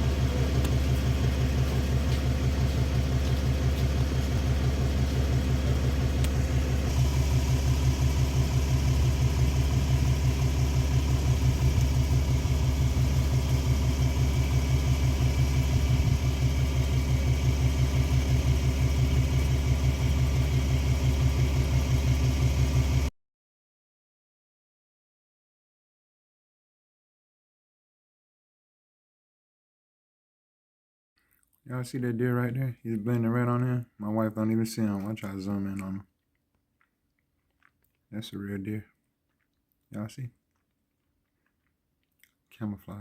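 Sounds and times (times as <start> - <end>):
vehicle engine running: 0.0 - 23.1.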